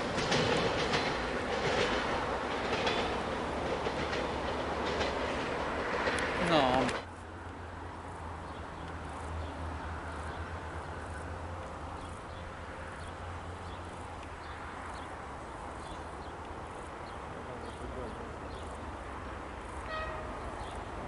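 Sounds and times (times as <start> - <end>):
faint insect or bird chirps: 11.9 - 18.9, 19.7 - 21.0.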